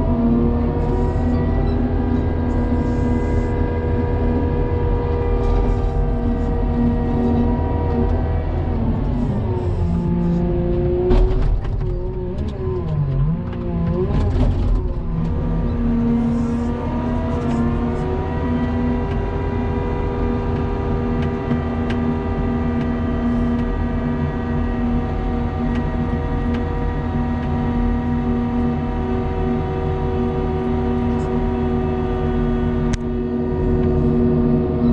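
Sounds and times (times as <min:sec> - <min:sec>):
snowplow engine revving: 0:00.0 - 0:34.9.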